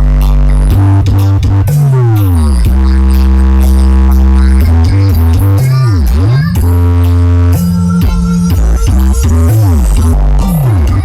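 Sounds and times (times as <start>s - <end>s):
electronic dance music with heavy bass: 0.0s - 11.0s.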